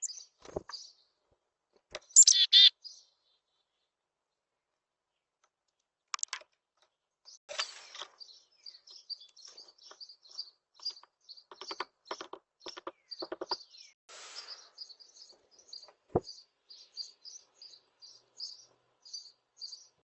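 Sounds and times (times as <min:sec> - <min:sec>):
small birds chirping: 0:00.0 - 0:20.0
sharp taps and clicks: 0:06.1 - 0:06.5.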